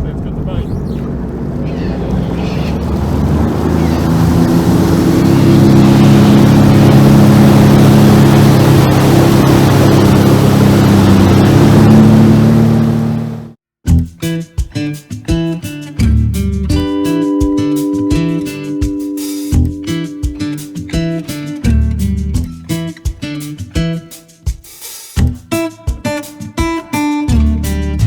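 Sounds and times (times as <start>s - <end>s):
wind rushing: 0.0s - 12.4s
water rushing: 0.0s - 13.5s
jet ski engine running: 0.0s - 13.6s.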